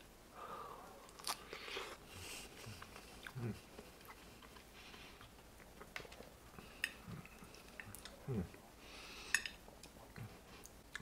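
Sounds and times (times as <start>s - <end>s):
wet biting and chewing: 1.1s - 1.7s
small mouth clicks: 9.3s - 11.0s.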